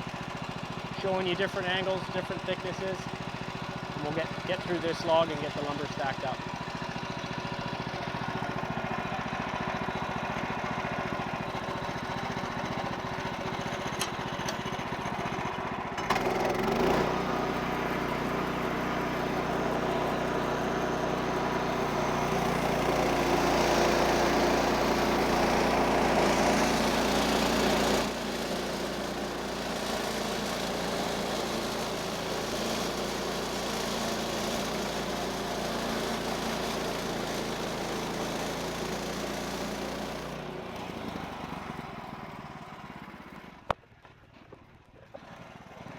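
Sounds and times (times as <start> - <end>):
sawmill engine running: 0.0 - 43.8
bandsaw sawing log: 3.8 - 6.5, 16.0 - 43.5.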